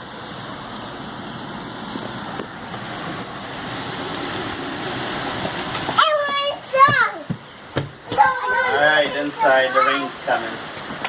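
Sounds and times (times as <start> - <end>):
rain: 0.0 - 11.0
wind: 0.0 - 11.0.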